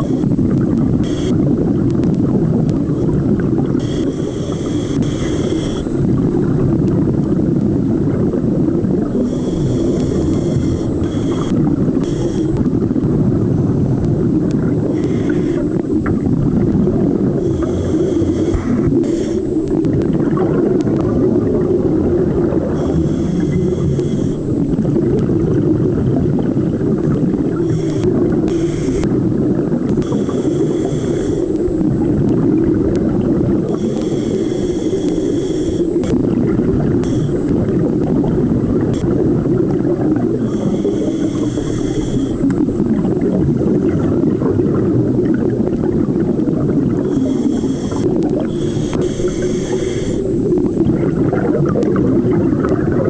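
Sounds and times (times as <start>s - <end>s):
underwater bubbling rumble: 0.0s - 53.0s
diver inhaling through regulator: 1.0s - 1.4s, 3.8s - 6.5s, 9.0s - 12.9s, 14.7s - 16.3s, 16.9s - 20.3s, 22.5s - 25.1s, 27.3s - 29.3s, 30.0s - 32.0s, 33.6s - 38.0s, 40.3s - 43.7s, 47.0s - 50.8s.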